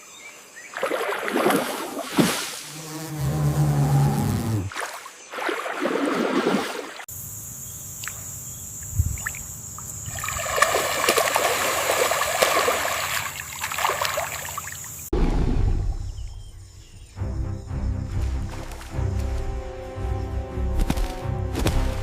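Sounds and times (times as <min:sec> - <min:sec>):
water trickling and sloshing: 0:00.7 - 0:02.8, 0:04.7 - 0:07.1, 0:08.0 - 0:16.9, 0:18.1 - 0:19.8.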